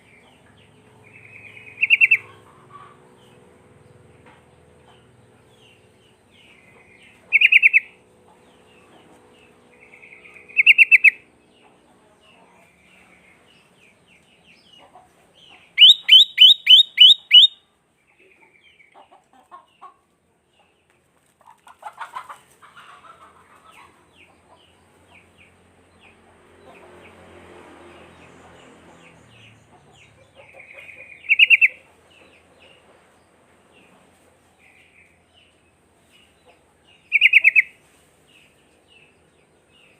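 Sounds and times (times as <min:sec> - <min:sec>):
bird singing: 0:00.0 - 0:19.0, 0:28.1 - 0:32.8, 0:36.9 - 0:37.8
bird chattering: 0:01.1 - 0:02.9, 0:06.8 - 0:08.0, 0:09.8 - 0:11.2, 0:15.7 - 0:17.6, 0:30.4 - 0:31.9, 0:37.1 - 0:37.8.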